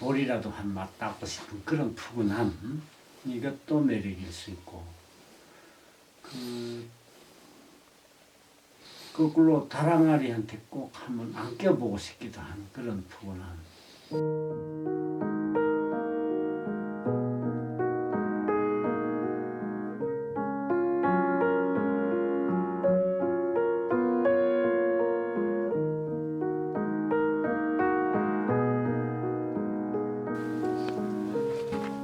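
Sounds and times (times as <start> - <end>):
slow piano music: 14.1 - 32.0.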